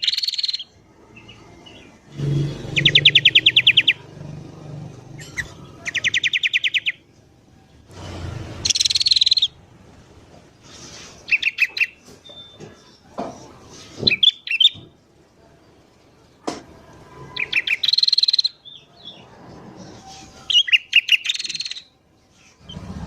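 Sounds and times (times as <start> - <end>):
bird trilling: 2.1 - 4.2, 5.2 - 7.0, 8.6 - 9.6, 17.4 - 18.6
bird chattering call: 2.2 - 4.0.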